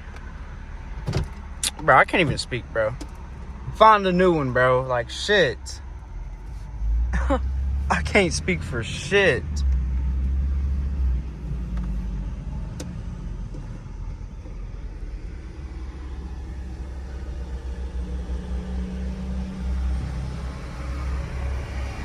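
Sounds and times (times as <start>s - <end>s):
car engine rumble: 0.0s - 22.0s
tyres on the road: 0.0s - 22.0s.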